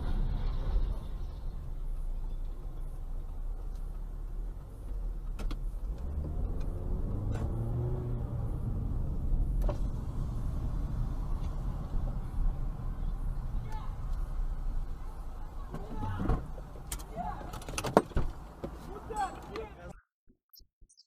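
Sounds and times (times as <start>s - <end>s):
car engine and road rumble: 0.0s - 19.9s.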